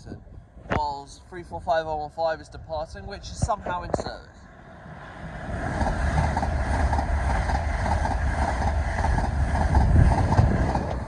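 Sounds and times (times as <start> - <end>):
passing train rumble and clatter: 2.8 - 11.0.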